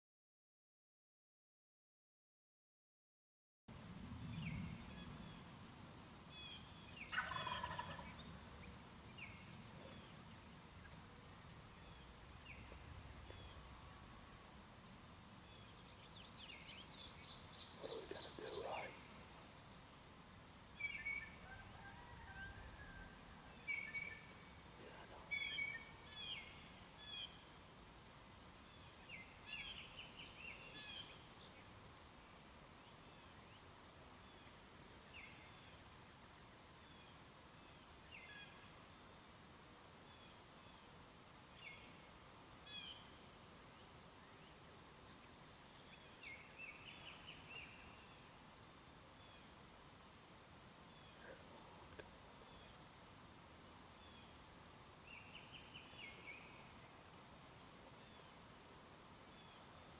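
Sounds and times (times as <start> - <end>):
bird chirping: 6.3 - 14.0, 15.4 - 21.5, 23.5 - 27.5, 28.6 - 32.0, 41.6 - 48.4
turkey gobbling: 7.1 - 8.1.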